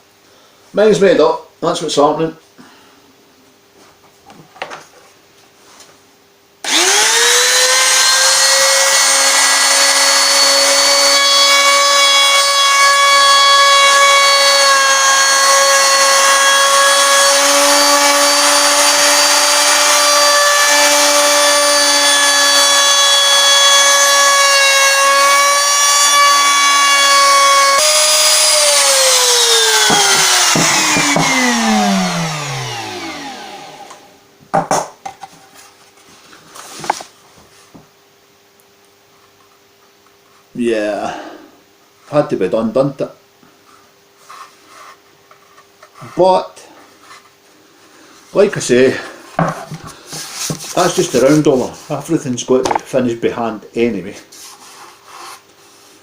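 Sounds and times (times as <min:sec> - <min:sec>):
router whining: 0:06.6 - 0:34.2.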